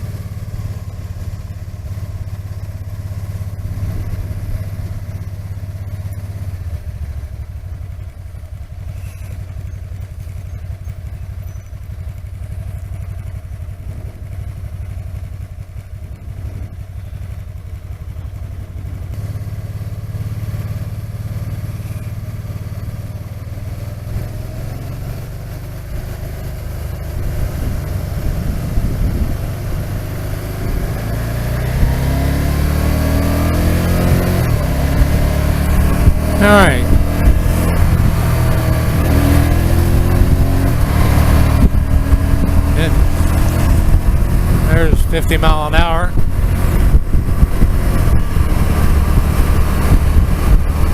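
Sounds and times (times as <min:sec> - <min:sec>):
motorcycle engine running: 0:00.0 - 0:50.9
wind rushing: 0:45.8 - 0:50.9.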